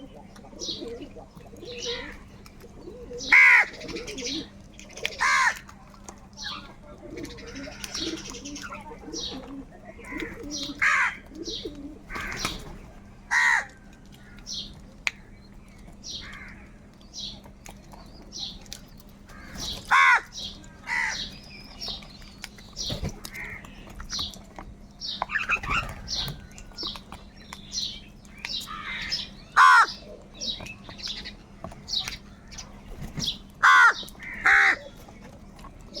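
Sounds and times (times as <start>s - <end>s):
crows cawing: 3.2s - 4.4s, 5.1s - 5.7s, 9.9s - 11.2s, 12.1s - 12.6s, 13.3s - 14.6s, 16.1s - 16.8s, 19.3s - 21.4s, 23.2s - 23.8s, 28.6s - 30.2s, 33.6s - 35.0s.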